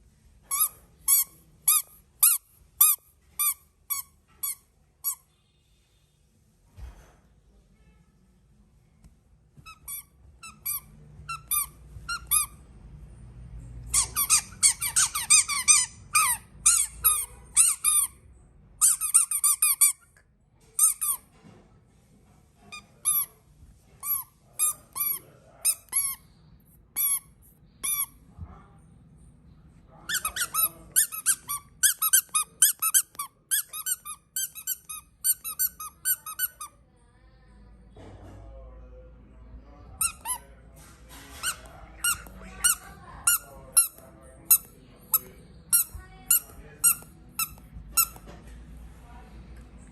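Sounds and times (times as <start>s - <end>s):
squeaky toy squeaks: 0.4s - 5.3s, 9.6s - 12.6s, 13.9s - 18.2s, 18.8s - 20.2s, 20.8s - 21.3s, 22.7s - 23.4s, 24.0s - 26.2s, 26.9s - 28.2s, 30.0s - 36.7s, 40.0s - 40.5s, 41.3s - 48.3s.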